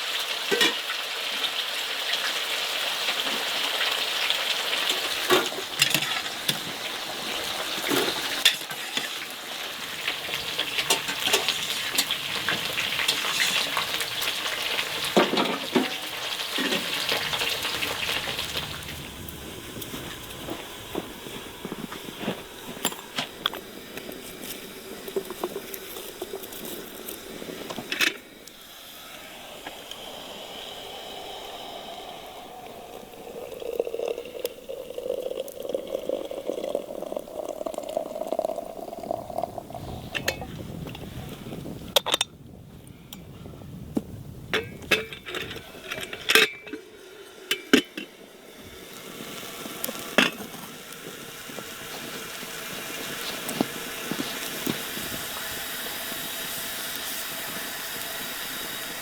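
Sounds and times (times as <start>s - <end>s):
dishes and utensils clinking: 0.5s - 0.8s, 44.6s - 46.8s
steady background noise: 4.9s - 40.5s.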